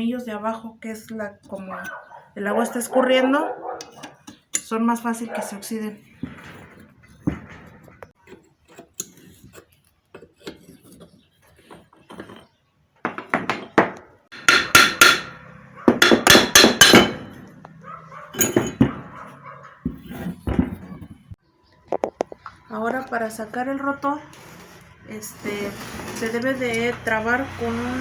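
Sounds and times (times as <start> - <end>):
hammer striking metal: 14.3 - 17.7.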